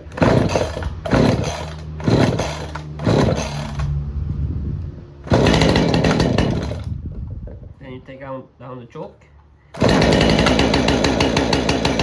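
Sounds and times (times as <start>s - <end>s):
chainsaw being pull-started: 0.1s - 4.0s, 5.3s - 6.9s, 9.8s - 12.0s.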